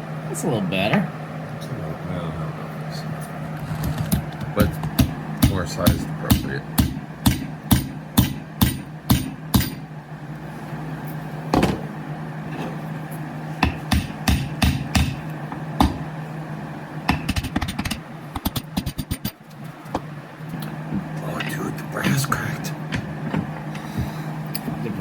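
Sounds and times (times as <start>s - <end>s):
steady low hum: 0.0s - 25.0s
hammer striking metal: 4.1s - 9.8s, 13.6s - 15.2s.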